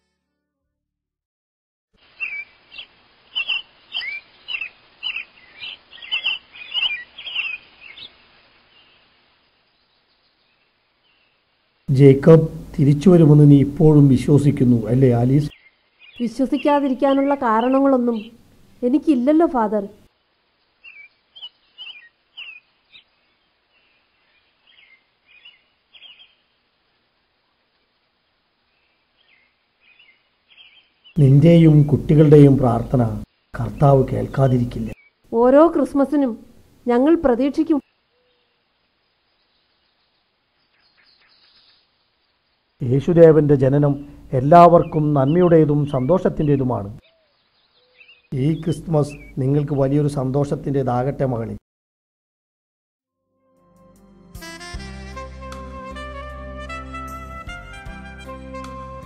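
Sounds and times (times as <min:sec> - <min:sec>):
bird chirping: 0:02.0 - 0:27.0, 0:28.6 - 0:51.5.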